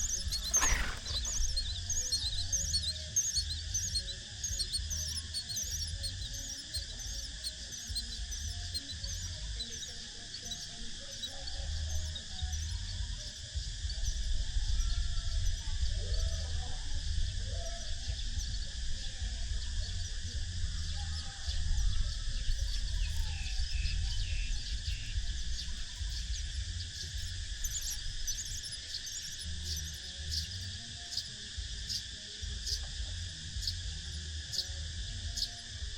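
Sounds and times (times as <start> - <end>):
high bird chirps: 0.0 - 11.3
low fluctuating rumble: 0.0 - 30.9, 31.6 - 35.9
insect chorus: 0.0 - 35.9.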